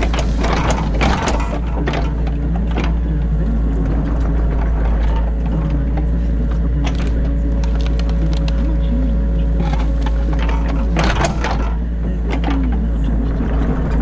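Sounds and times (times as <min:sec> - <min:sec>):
excavator bucket knocks: 0:00.0 - 0:03.2
excavator engine running: 0:00.0 - 0:14.0.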